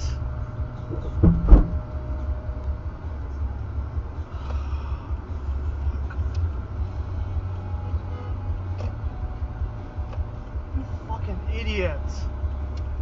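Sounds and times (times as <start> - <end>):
car rumbling from inside: 0.0 - 13.0
loud sudden thumps: 0.9 - 1.9.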